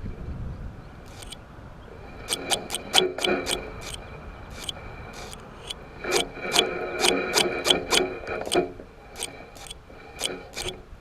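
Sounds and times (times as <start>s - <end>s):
fishing reel clicks: 1.1s - 1.4s, 2.3s - 6.2s, 7.0s - 8.6s, 9.2s - 10.8s
fishing reel gears rasping: 1.1s - 1.4s, 2.3s - 8.6s, 9.2s - 10.8s
thin steady whine: 1.1s - 1.4s, 2.2s - 8.6s.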